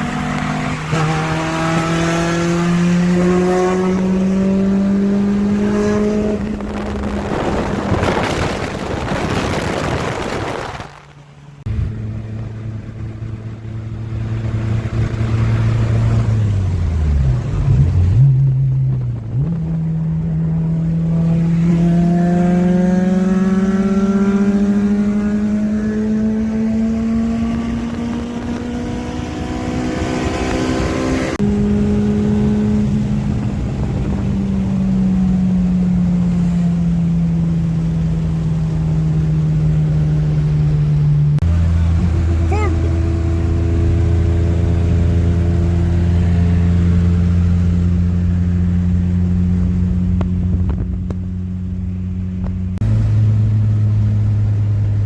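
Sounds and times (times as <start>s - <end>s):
car engine running: 0.0s - 24.0s, 36.8s - 55.0s.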